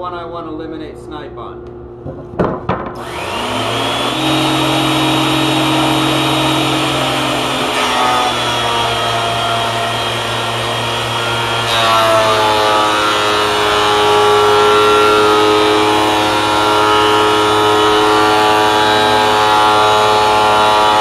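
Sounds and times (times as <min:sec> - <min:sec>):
thickness planer running: 0:03.0 - 0:21.0.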